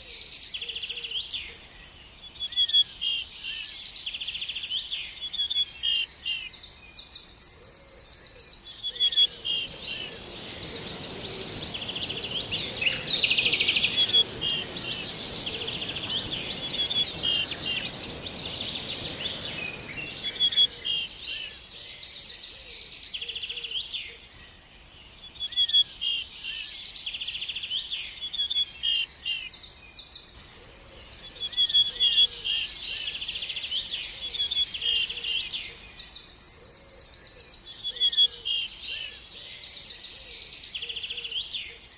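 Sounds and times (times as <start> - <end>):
small birds chirping and trilling: 8.7 - 22.6
steady high hiss: 9.1 - 21.7.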